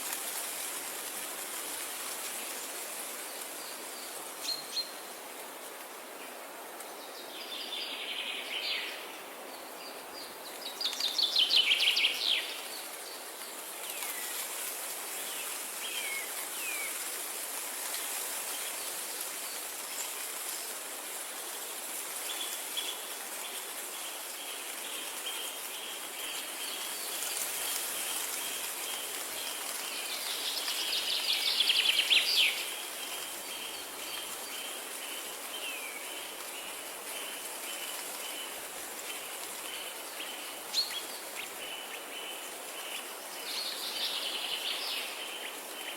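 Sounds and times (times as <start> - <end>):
steady background hiss: 0.0 - 45.9
songbirds singing: 22.2 - 45.9.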